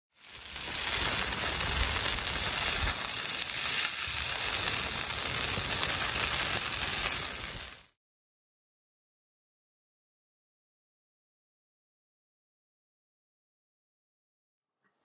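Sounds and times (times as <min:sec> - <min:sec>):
food sizzling in oil: 0:00.1 - 0:08.0.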